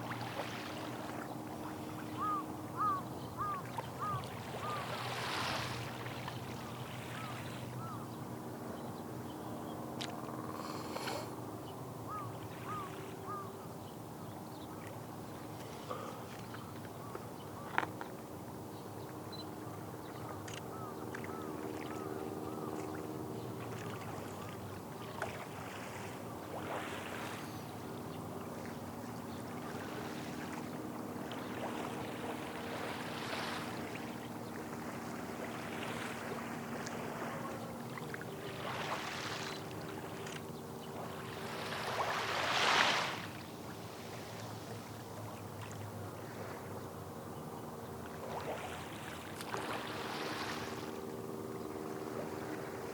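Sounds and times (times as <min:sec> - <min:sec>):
small waves washing ashore: 0:00.0 - 0:08.7, 0:09.8 - 0:14.1, 0:14.7 - 0:52.9
steady low hum: 0:43.3 - 0:52.9.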